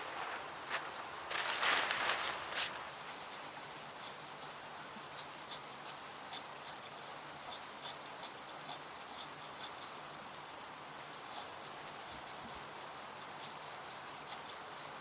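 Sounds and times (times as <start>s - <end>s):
footsteps crunching: 0.0s - 3.0s.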